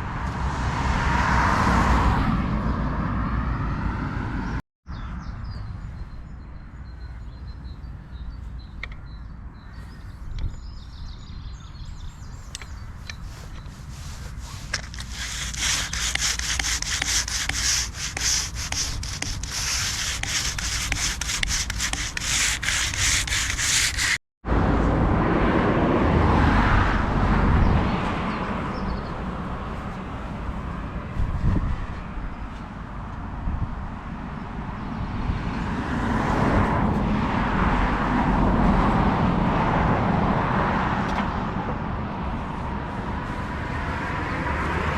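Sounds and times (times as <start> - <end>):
low rubbing noise: 12.2 - 24.2, 42.2 - 44.6
hand sanding rasping strokes: 12.4 - 24.2, 42.5 - 44.2.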